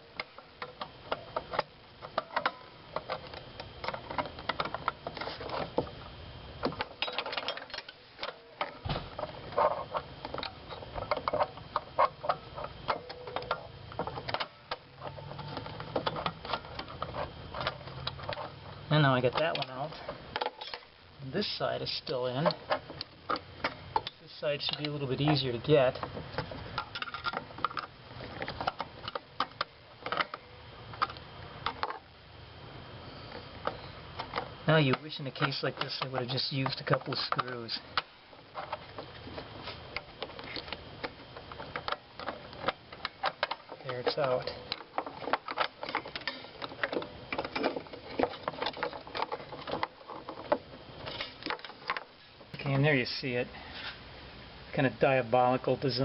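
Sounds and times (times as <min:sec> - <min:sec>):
tool clicking and scraping plastic: 0:33.3 - 0:52.1.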